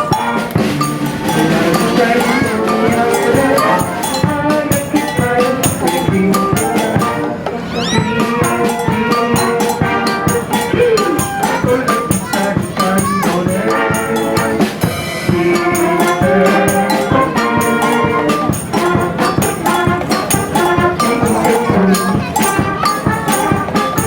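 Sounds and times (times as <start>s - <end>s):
live band music: 0.0s - 24.0s
steady drum beat: 0.0s - 24.0s.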